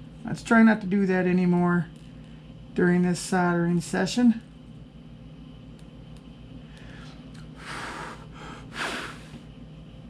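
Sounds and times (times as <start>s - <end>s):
low electrical hum: 0.0s - 10.0s
person breathing noisily: 6.7s - 9.5s.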